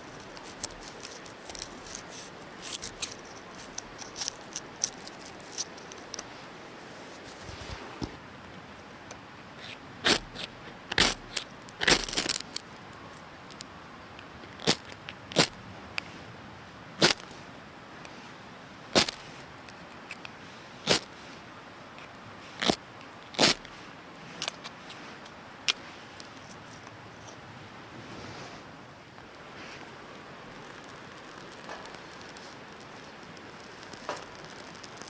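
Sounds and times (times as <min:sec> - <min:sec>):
wood fire crackling: 0:00.0 - 0:08.2, 0:09.6 - 0:13.8, 0:29.0 - 0:35.0.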